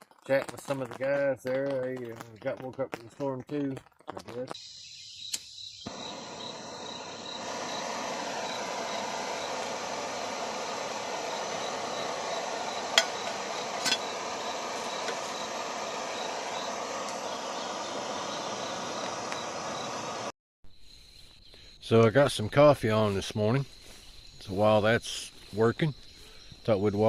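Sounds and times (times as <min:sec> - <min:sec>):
rain on a tarp: 0:00.0 - 0:04.5
faint high-pitched chirping: 0:04.5 - 0:09.7, 0:11.3 - 0:27.0.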